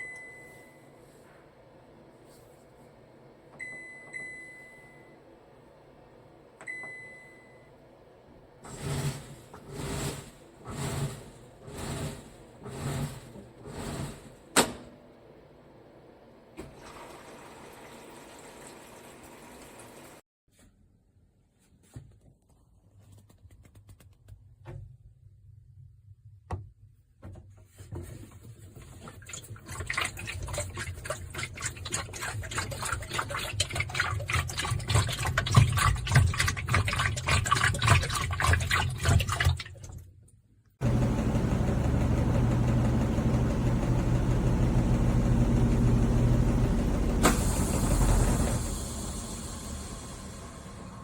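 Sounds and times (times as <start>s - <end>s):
washing machine churning hum: 0.0s - 20.2s, 27.2s - 40.2s, 40.8s - 51.0s
water pouring into washing machine: 16.6s - 20.2s, 29.0s - 40.0s.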